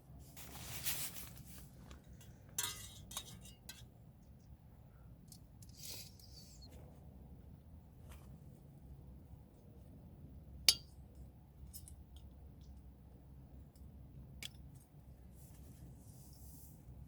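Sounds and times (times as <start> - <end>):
low steady rumble: 6.6 - 17.0.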